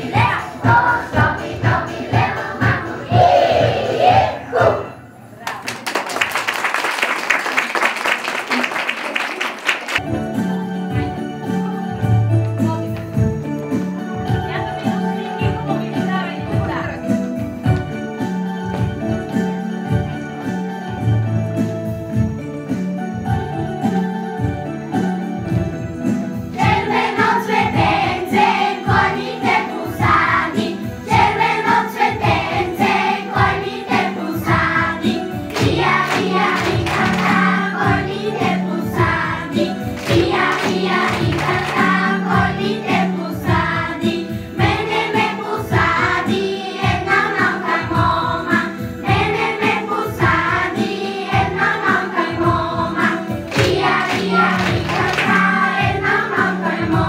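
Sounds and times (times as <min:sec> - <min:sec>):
backing music with steady beat: 0:00.0 - 0:04.4, 0:10.0 - 0:57.0
group singing: 0:00.0 - 0:05.0, 0:26.6 - 0:57.0.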